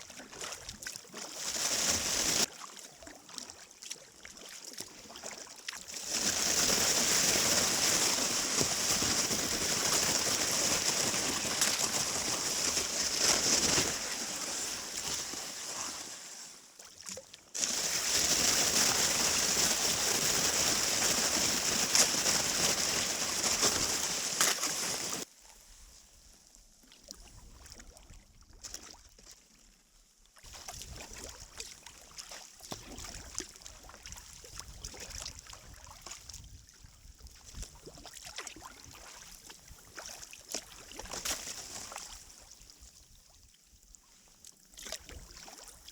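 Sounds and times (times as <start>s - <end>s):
water rushing around kayak: 0.7s - 2.7s, 4.6s - 25.3s.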